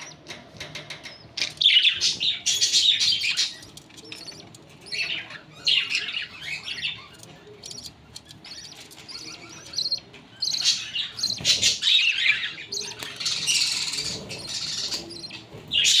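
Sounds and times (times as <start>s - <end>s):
budgerigars chirping: 0.0s - 16.0s.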